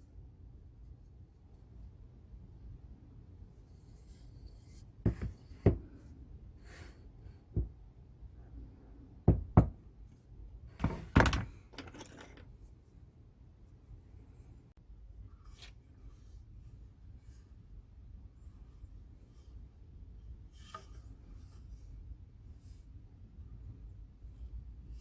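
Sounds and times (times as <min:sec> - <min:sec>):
knocks of tools on workbench: 0:10.8 - 0:12.4.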